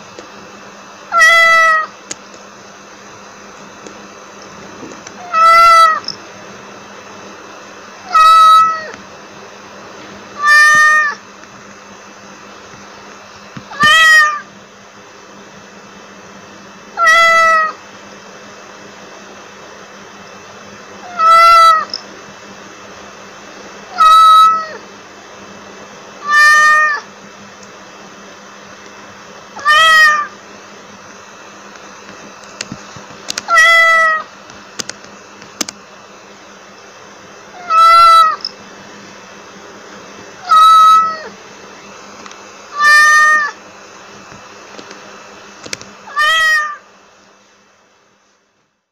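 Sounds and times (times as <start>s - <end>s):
steady background hiss: 0.0s - 48.9s
cat meowing: 1.1s - 2.0s, 5.2s - 6.1s, 8.1s - 8.9s, 10.4s - 11.2s, 13.7s - 14.5s, 17.0s - 17.8s, 21.0s - 22.0s, 23.9s - 24.8s, 26.2s - 27.1s, 29.6s - 30.3s, 33.4s - 34.3s, 37.5s - 38.5s, 40.4s - 41.4s, 42.7s - 43.6s, 46.1s - 46.9s.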